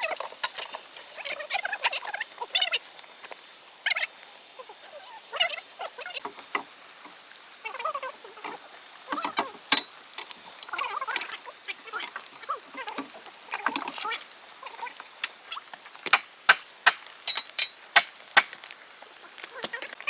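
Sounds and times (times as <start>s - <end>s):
squeaky animal calls: 1.1s - 2.9s, 3.8s - 6.6s.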